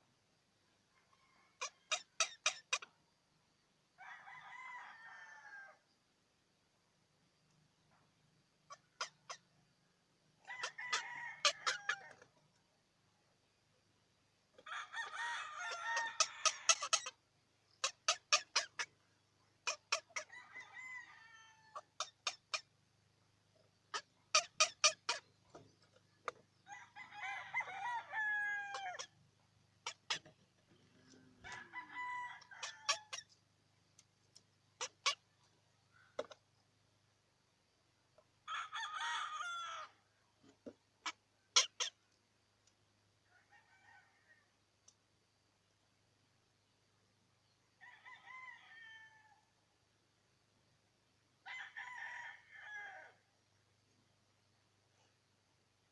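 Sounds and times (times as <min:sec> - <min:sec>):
bird long pitched calls: 0:14.9 - 0:17.2.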